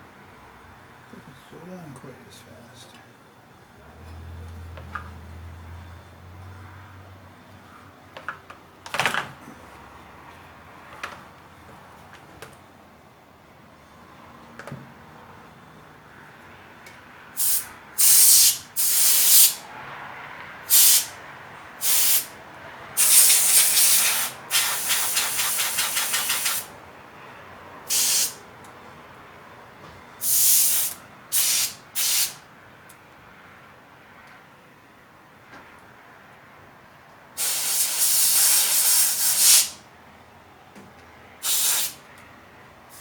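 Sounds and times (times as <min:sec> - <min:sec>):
aerosol can spraying: 0:17.4 - 0:19.6, 0:20.7 - 0:21.1, 0:21.8 - 0:22.3, 0:23.0 - 0:26.7, 0:27.9 - 0:28.4, 0:30.2 - 0:32.4, 0:37.4 - 0:39.8, 0:41.4 - 0:42.0.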